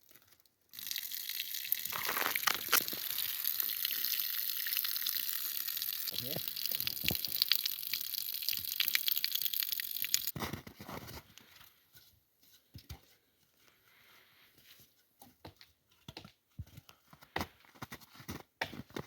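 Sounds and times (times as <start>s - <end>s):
dry twigs crackling and snapping: 1.7s - 3.8s.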